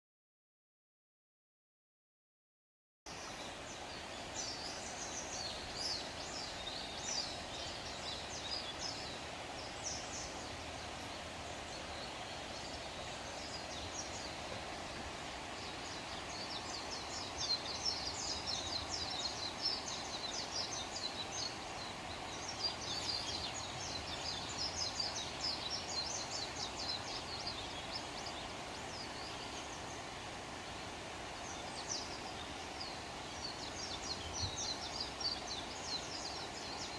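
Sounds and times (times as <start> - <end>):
small birds chirping: 3.1 - 36.9.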